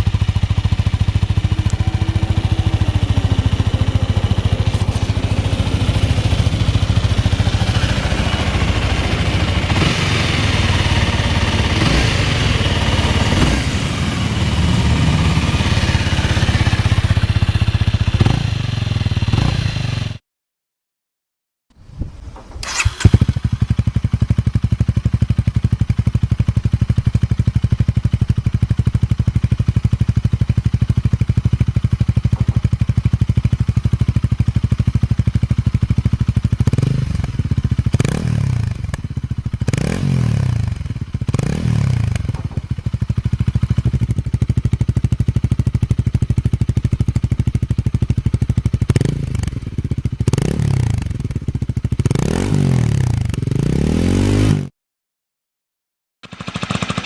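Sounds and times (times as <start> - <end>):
throttle blips revving: 0.0 - 12.2
motorcycle engine idling: 0.0 - 20.2, 22.6 - 52.0.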